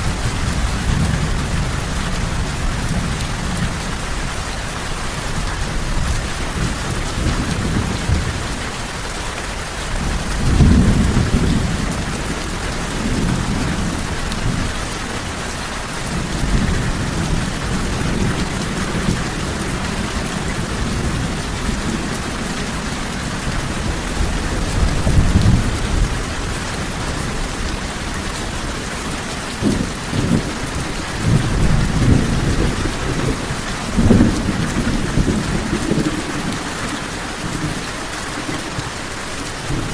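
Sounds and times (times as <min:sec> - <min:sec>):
heavy rain falling: 0:00.0 - 0:39.9
thunder rolling: 0:09.9 - 0:14.8, 0:16.0 - 0:37.8.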